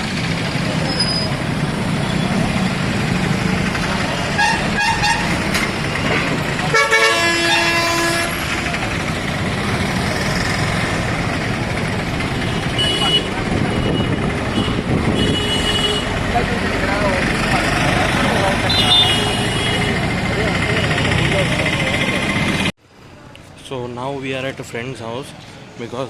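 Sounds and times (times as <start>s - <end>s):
road traffic noise: 0.0s - 26.0s
vehicle horns: 4.1s - 8.8s, 12.2s - 16.5s, 17.8s - 21.4s.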